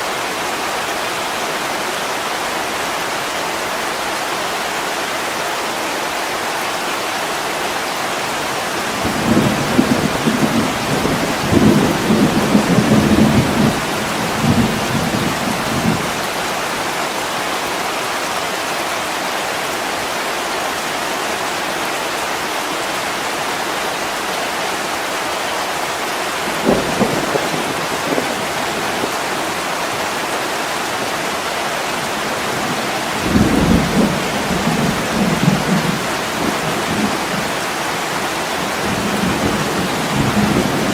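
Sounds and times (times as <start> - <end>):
heavy rain on window glass: 7.8 - 17.9, 25.8 - 40.9
low thunder rumbling: 9.0 - 16.2, 26.5 - 29.2, 32.4 - 38.0.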